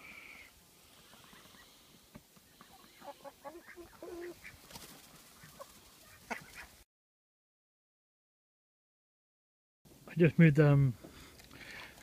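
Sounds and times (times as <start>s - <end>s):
chickens and ducks clucking: 1.0s - 6.8s.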